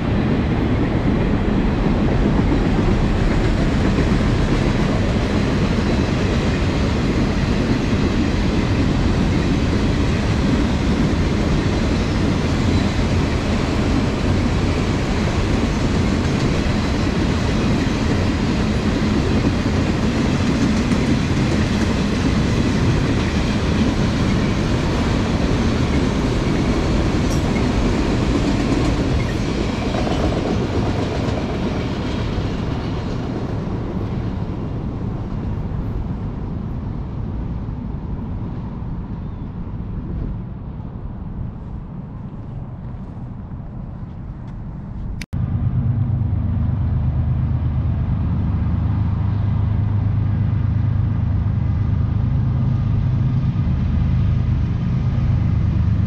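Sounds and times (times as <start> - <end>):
train wheels on rails: 0.0 - 38.6.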